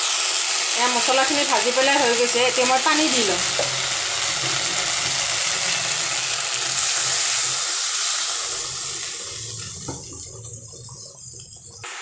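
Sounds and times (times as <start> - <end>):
paste sizzling in hot oil: 0.0 - 12.0
water poured into hot oil hissing: 0.0 - 12.0.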